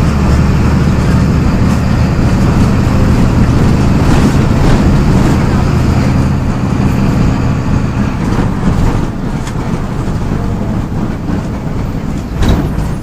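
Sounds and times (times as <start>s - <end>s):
bus diesel engine droning: 0.0s - 13.0s.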